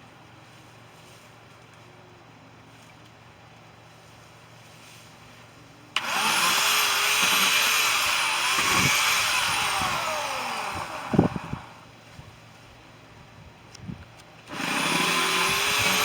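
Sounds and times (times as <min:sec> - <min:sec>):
power tool motor whining: 0:06.0 - 0:11.8, 0:14.5 - 0:16.0.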